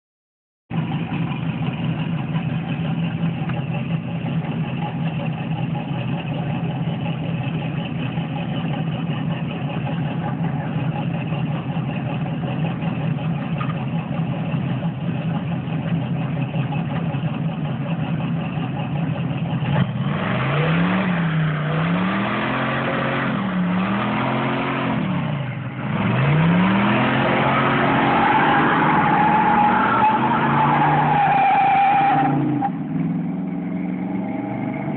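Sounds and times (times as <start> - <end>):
car engine idling and revving: 0.7 - 34.9
tyres spinning in burnout: 2.4 - 32.9.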